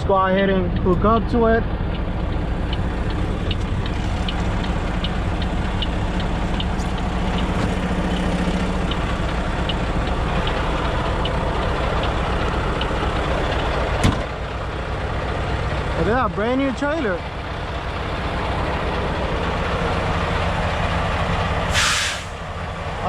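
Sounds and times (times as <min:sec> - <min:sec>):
truck diesel engine running: 0:00.0 - 0:23.0
faint even ticking: 0:02.0 - 0:14.0.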